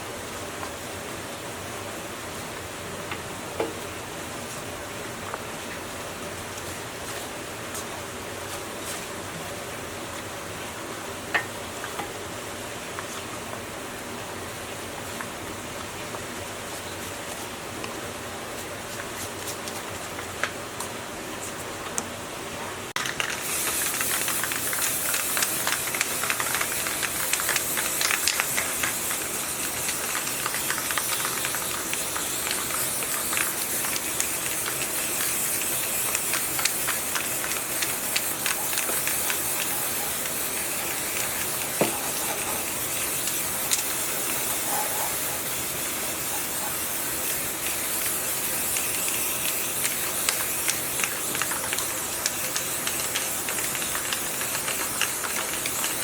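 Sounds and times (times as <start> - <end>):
pressurized spray hissing: 23.4 - 56.0.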